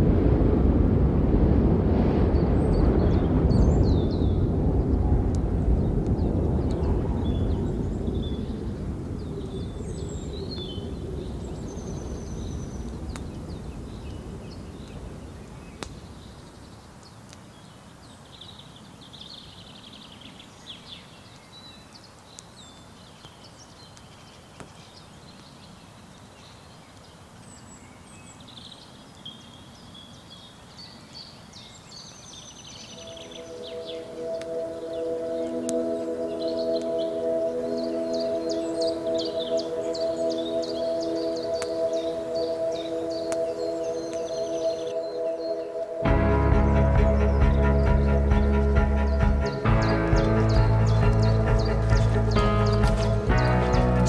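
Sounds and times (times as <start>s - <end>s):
low rumble: 0.0s - 15.3s, 45.8s - 54.0s
small birds singing: 2.4s - 54.0s.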